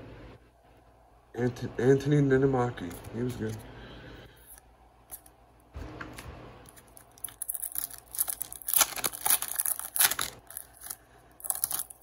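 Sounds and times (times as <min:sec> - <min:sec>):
foil wrapper tearing and crinkling: 0:06.7 - 0:12.0.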